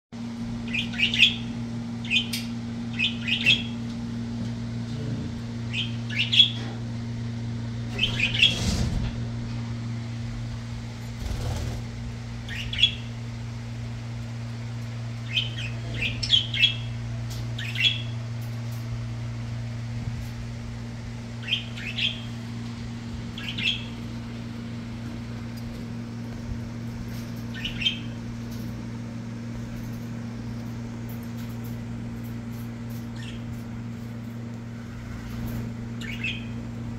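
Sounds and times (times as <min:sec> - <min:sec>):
steady low hum: 0:00.2 - 0:36.9
budgerigars chirping: 0:00.7 - 0:03.7, 0:05.7 - 0:06.6, 0:12.5 - 0:13.1, 0:15.3 - 0:16.9, 0:17.6 - 0:18.1, 0:21.4 - 0:22.3, 0:23.4 - 0:24.0, 0:27.5 - 0:28.2, 0:33.2 - 0:33.4, 0:36.0 - 0:36.6.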